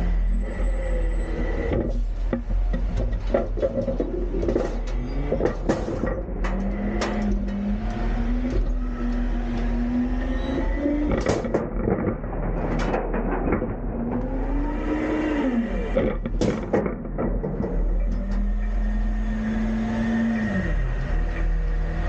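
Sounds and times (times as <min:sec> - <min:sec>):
garbage truck engine revving: 0:00.0 - 0:22.0
metal clanks and bangs: 0:01.4 - 0:09.8, 0:10.5 - 0:19.1.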